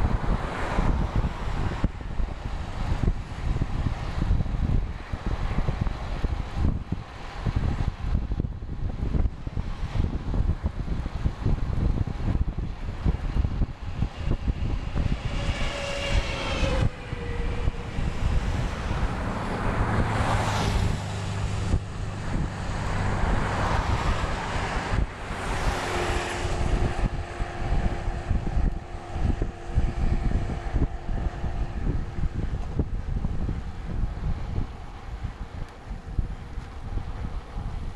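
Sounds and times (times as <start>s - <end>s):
motor vehicles passing: 0.0s - 37.9s
wind buffeting microphone: 0.0s - 37.9s.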